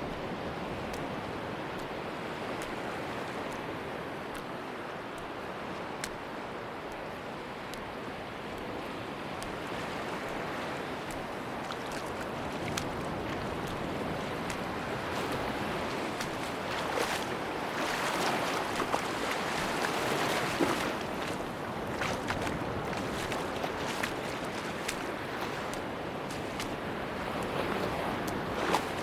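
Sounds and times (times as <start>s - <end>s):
sea waves washing on beach: 0.0s - 29.0s
faint clicks: 3.4s - 6.3s, 6.9s - 7.9s, 8.5s - 13.0s.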